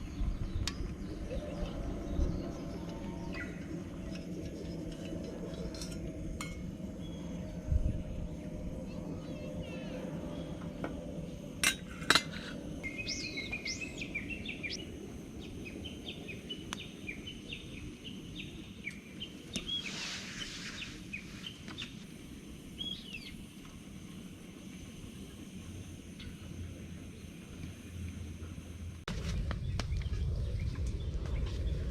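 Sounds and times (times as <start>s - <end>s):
birds chirping: 0.0s - 5.8s, 6.6s - 22.0s, 22.7s - 23.5s
low outdoor hum: 0.0s - 31.9s.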